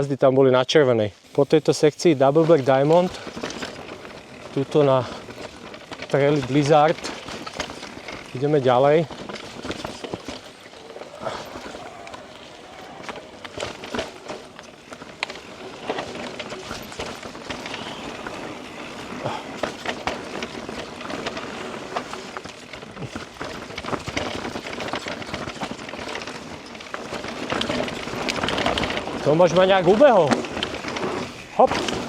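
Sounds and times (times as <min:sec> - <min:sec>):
bike tyres rolling on dirt: 0:00.0 - 0:32.0
wheels knocking on roots: 0:00.8 - 0:32.0
bike chain and frame rattling: 0:01.2 - 0:32.0.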